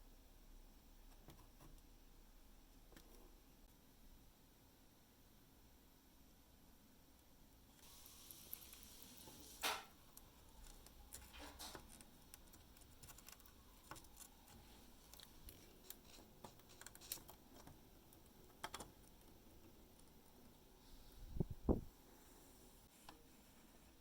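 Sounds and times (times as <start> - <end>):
small parts and tools clicking: 7.8 - 20.1.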